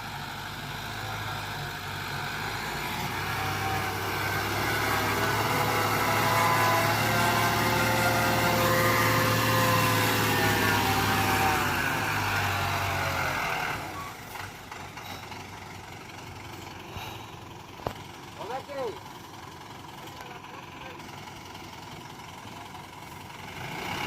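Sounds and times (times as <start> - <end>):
heavy vehicle engine running: 0.0 - 24.0.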